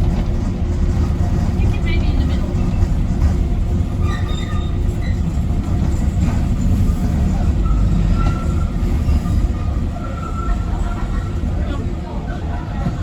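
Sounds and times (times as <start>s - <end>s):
train rumble: 0.0s - 13.0s
high wheel squeal: 4.0s - 6.1s, 6.7s - 11.6s.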